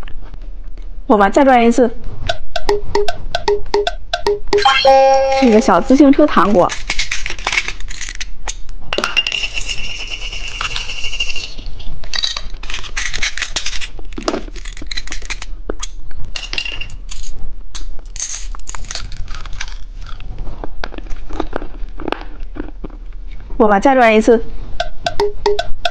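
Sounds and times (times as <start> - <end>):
plastic toy taps and clicks: 2.3 - 4.7, 24.8 - 25.9.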